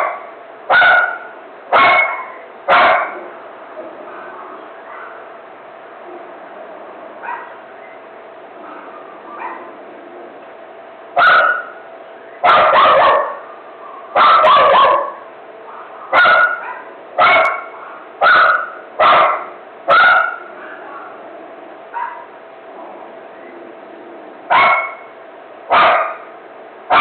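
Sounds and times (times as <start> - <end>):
dog barking: 0.0 - 3.3, 4.8 - 5.3, 7.2 - 7.6, 8.7 - 9.7, 11.2 - 11.8, 12.4 - 21.2, 22.0 - 22.3, 24.5 - 25.1, 25.7 - 26.3.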